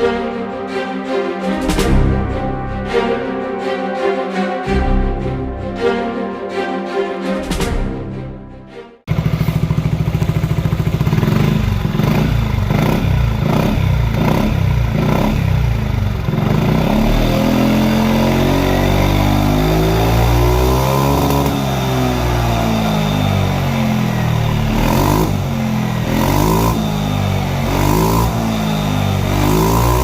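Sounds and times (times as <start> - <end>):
music: 0.0 - 9.1
scooter engine revving: 9.1 - 30.0.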